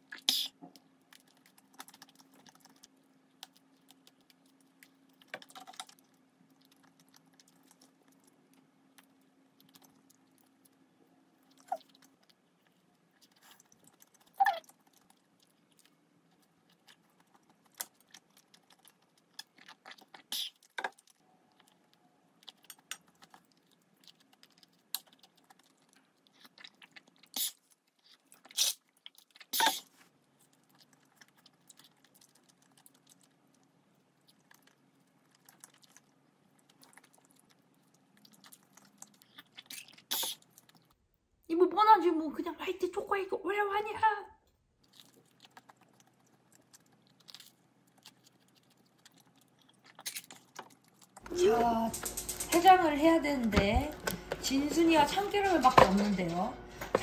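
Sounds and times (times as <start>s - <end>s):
chewing and biting food: 0.0s - 41.1s, 44.8s - 51.3s.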